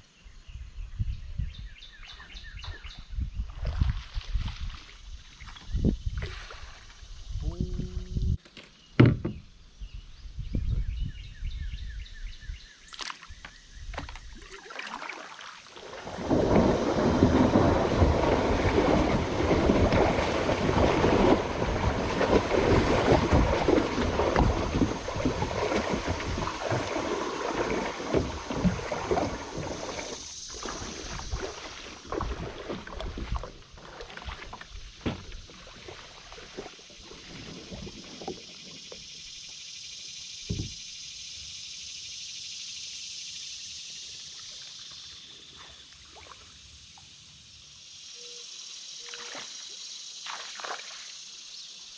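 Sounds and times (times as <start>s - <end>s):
knocks: 9.0s - 9.4s
water rushing around kayak: 12.9s - 39.6s.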